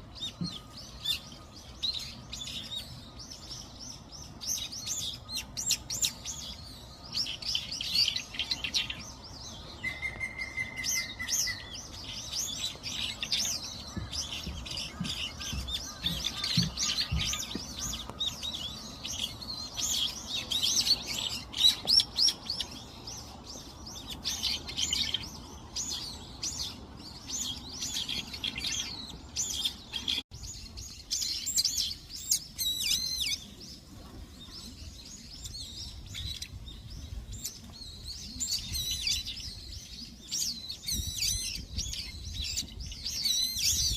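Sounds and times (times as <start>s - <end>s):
bird trill: 0.0s - 33.5s
songbirds chirping: 0.0s - 43.9s.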